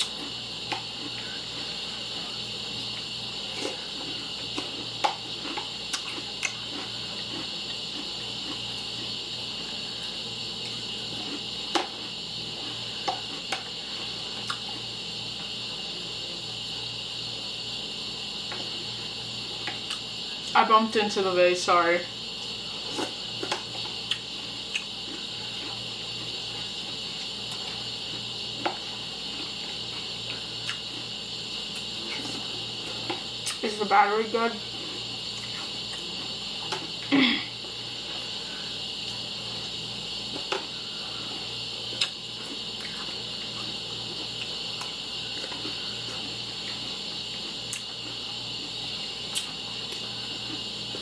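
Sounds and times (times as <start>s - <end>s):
cereal crunching: 0.0s - 9.2s
steady hiss: 0.0s - 51.0s.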